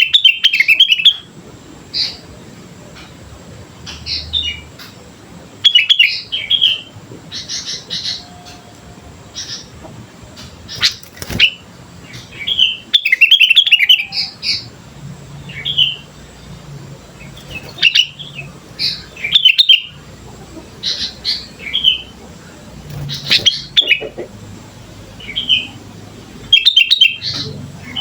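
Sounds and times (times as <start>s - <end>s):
bulbul chirping: 10.6s - 11.6s, 17.2s - 20.0s, 22.9s - 24.5s.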